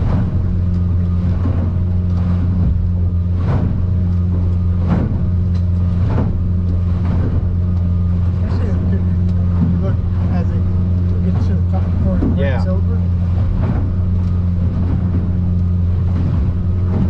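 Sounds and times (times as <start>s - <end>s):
outboard engine droning: 0.0s - 17.0s
waves hitting boat: 0.0s - 17.0s.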